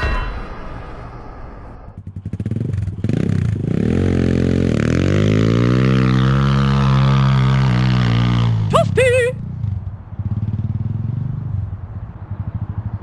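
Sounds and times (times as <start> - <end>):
dirt bike engine revving: 2.0 - 9.2.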